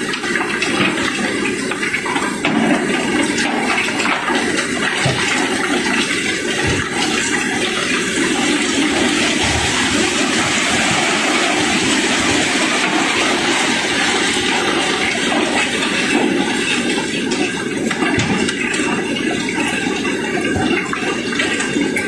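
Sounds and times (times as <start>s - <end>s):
cobblestones pouring clatter: 0.0s - 22.0s.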